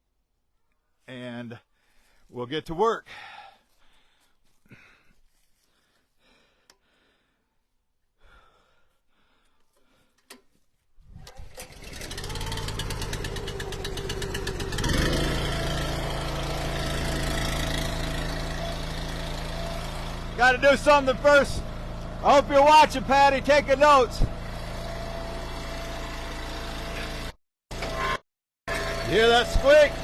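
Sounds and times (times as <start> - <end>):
gas engine starting and running: 9.7 - 30.0.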